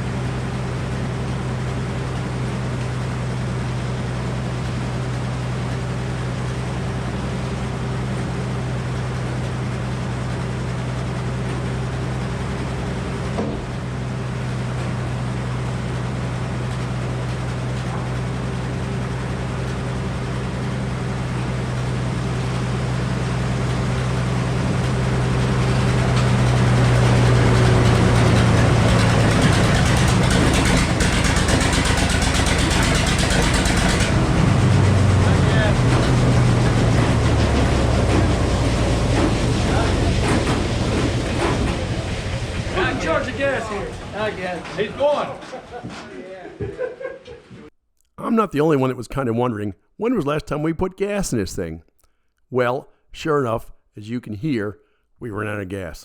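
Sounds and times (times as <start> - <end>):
gasoline engine running: 0.0 - 45.3
circular saw cutting log: 26.5 - 34.4.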